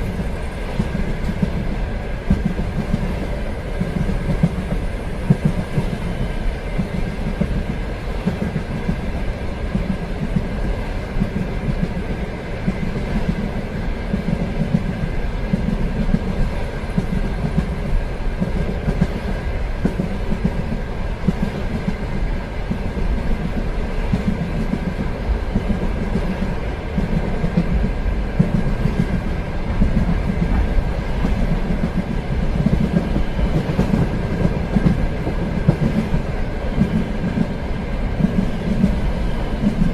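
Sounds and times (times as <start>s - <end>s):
train rumbling along rails: 0.0s - 39.9s.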